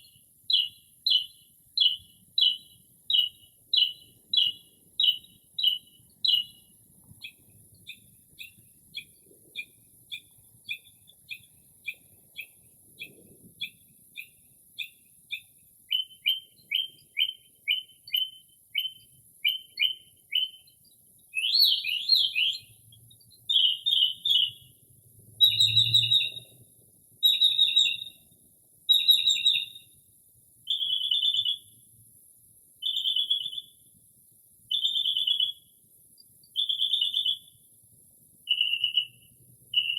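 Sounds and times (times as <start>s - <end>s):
mockingbird singing: 0.0s - 24.7s, 25.4s - 26.6s, 27.2s - 28.2s, 28.9s - 29.8s, 30.7s - 31.7s, 32.8s - 33.7s, 34.7s - 35.6s, 36.6s - 37.5s, 38.5s - 39.9s.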